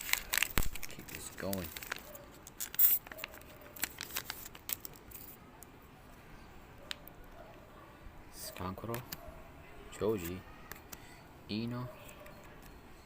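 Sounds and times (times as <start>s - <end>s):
foil pack tearing: 0.0s - 5.0s
foil crinkling and rustling: 0.0s - 5.4s.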